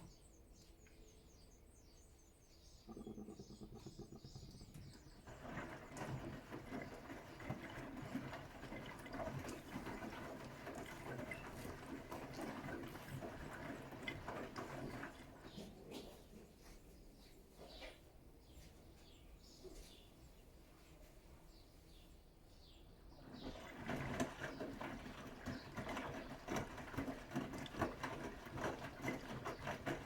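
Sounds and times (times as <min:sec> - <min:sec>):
water sloshing in washing machine drum: 0:02.9 - 0:16.4, 0:23.0 - 0:30.0.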